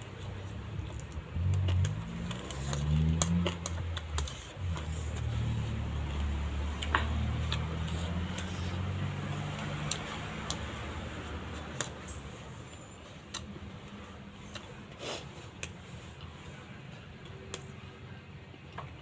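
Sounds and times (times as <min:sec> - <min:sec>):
chewing and mouth clicks: 0:00.8 - 0:08.8, 0:09.4 - 0:10.7, 0:13.2 - 0:15.0.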